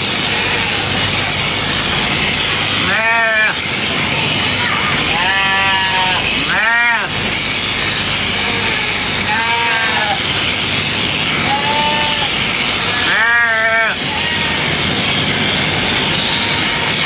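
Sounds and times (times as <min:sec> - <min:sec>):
sheep bleating: 0:00.1 - 0:01.0, 0:02.7 - 0:03.7, 0:04.6 - 0:07.2, 0:08.3 - 0:10.3, 0:11.3 - 0:14.9, 0:16.1 - 0:17.0.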